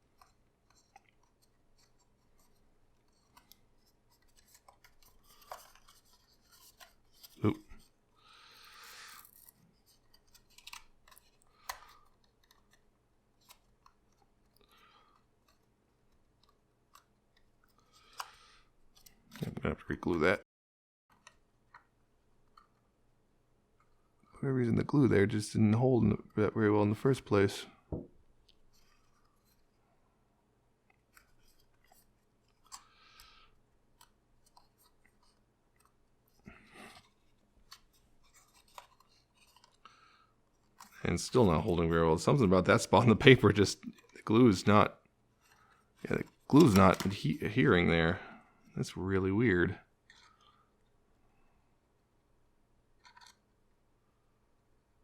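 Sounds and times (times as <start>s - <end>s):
paper rustle: 0.2s - 15.7s, 34.0s - 44.6s, 45.4s - 47.6s
thin paper crinkling: 46.0s - 47.5s.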